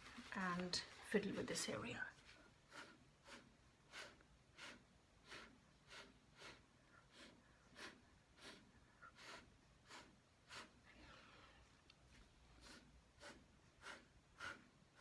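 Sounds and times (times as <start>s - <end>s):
short puffs of breath: 2.6s - 11.7s, 12.6s - 15.0s.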